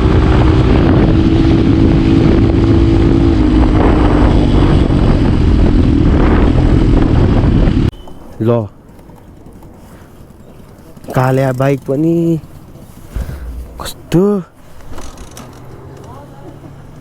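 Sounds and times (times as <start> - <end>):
motorcycle engine running: 13.1 - 14.2.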